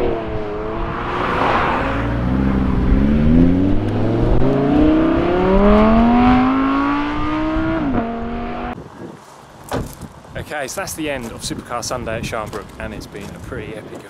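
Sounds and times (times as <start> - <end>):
car engine accelerating through gears: 0.0 - 8.8.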